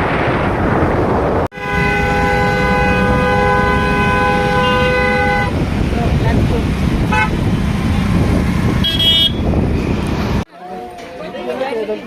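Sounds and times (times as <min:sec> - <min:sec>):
wind noise: 0:00.0 - 0:10.5
motorcycle road noise: 0:00.0 - 0:11.7
loud multi-tone horn blast: 0:01.5 - 0:05.7, 0:07.1 - 0:07.4, 0:08.4 - 0:09.6.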